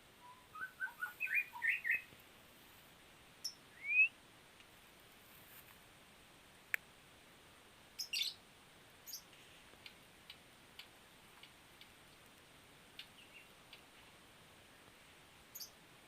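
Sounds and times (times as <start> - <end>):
songbird chirping: 0.0 - 2.8, 3.4 - 5.8, 7.9 - 15.8.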